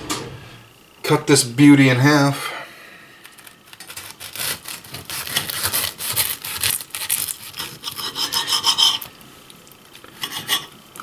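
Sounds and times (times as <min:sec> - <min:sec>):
knife sawing through crisp food: 0:03.8 - 0:09.1, 0:10.2 - 0:10.7.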